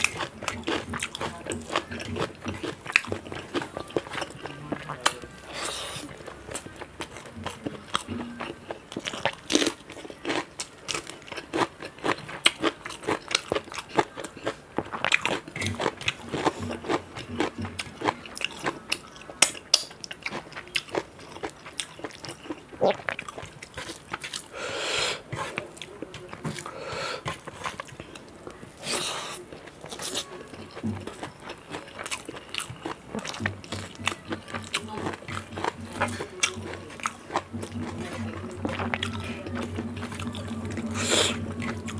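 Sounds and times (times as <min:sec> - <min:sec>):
person crunching and chewing: 0:00.0 - 0:41.9
mouth sounds: 0:22.8 - 0:23.1, 0:33.0 - 0:41.9.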